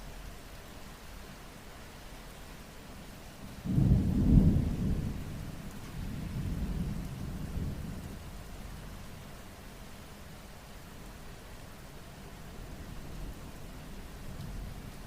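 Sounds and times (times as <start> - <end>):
steady rain: 0.0 - 15.0
low rumble of thunder: 3.5 - 9.2.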